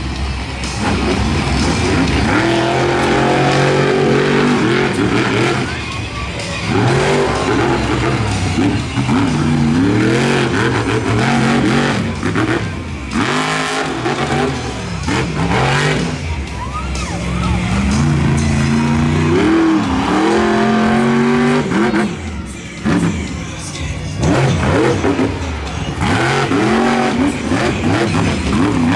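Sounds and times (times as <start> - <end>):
monster truck engine revving: 0.0 - 28.9.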